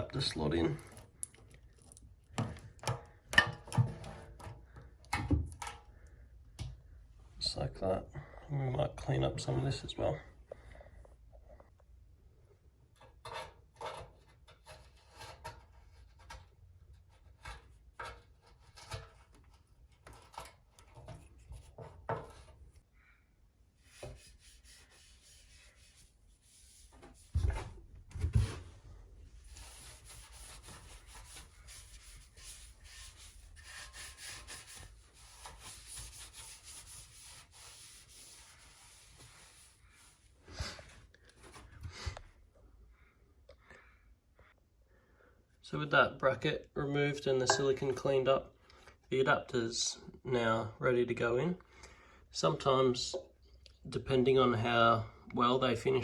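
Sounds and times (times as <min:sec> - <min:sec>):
steady rubbing: 0:23.8 - 0:27.9, 0:28.6 - 0:40.2.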